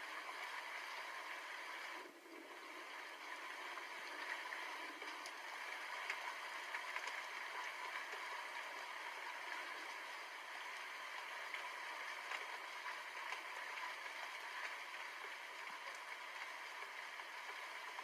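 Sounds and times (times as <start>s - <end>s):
steady rain hiss: 0.0s - 18.0s
raindrops ticking: 5.0s - 18.0s.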